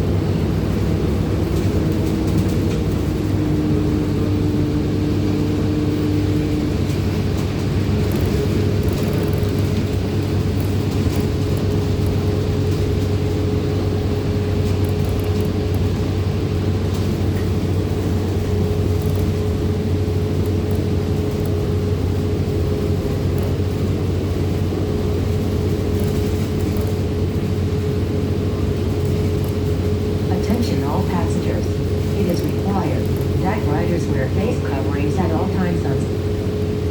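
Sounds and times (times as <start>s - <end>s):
bus engine and road drone: 0.0s - 36.9s.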